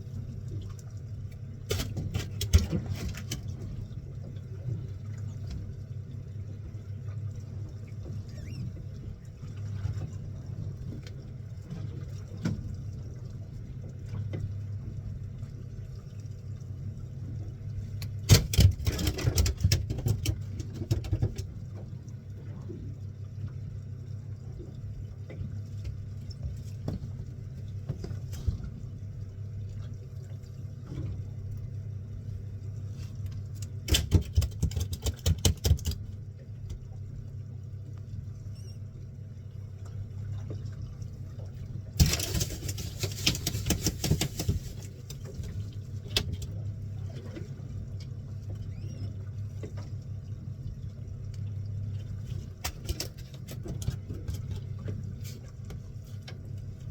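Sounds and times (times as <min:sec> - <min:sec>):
boat engine humming: 0:36.0 - 0:56.9.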